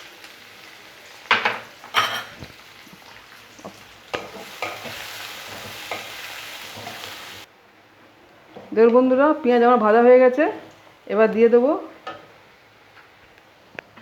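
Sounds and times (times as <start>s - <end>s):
onions sizzling in oil: 0.0s - 7.5s
spatula scraping a pan: 3.6s - 7.1s.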